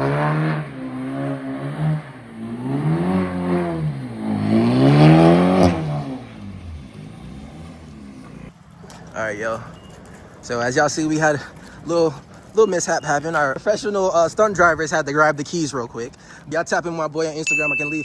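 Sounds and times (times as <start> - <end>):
car engine revving: 0.0 - 8.6.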